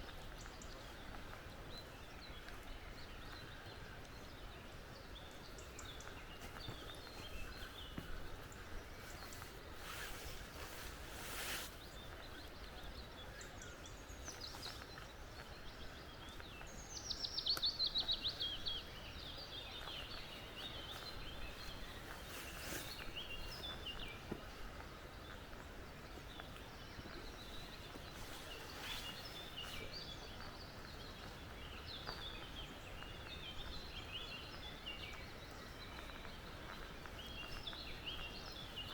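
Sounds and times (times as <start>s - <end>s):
birds calling and singing: 0.0s - 38.9s
steady background hiss: 3.6s - 38.9s.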